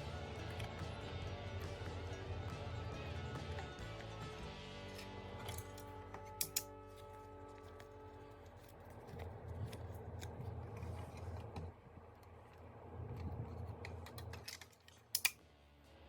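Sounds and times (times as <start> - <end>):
plastic parts snapping: 5.0 - 6.8, 13.7 - 15.4
plastic toy parts clicking: 5.5 - 6.7, 13.6 - 15.4.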